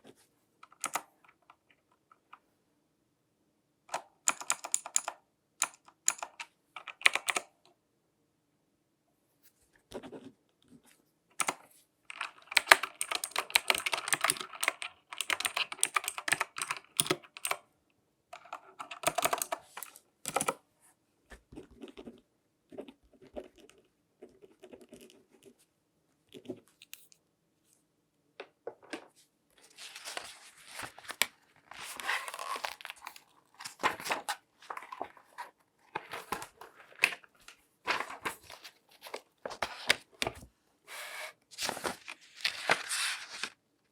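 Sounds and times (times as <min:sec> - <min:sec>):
latex gloves crinkling: 0:29.6 - 0:35.3.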